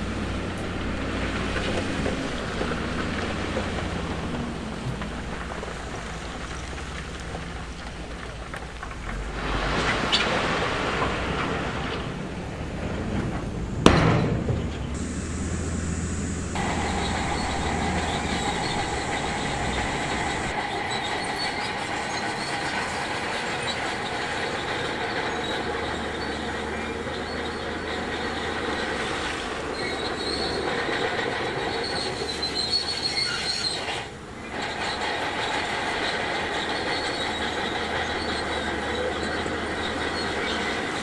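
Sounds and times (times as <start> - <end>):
bulldozer engine running: 0.0 - 9.5, 14.5 - 41.0
steel tracks squealing and clanking: 0.0 - 41.0
high squealing tones: 15.0 - 26.3.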